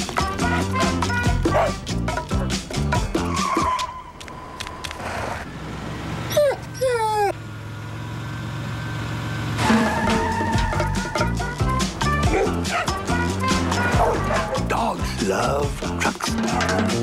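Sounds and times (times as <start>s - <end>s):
commercial music: 0.0s - 3.9s, 9.6s - 17.0s
truck engine humming: 0.0s - 16.1s
dog whining: 3.1s - 4.2s, 6.3s - 7.4s.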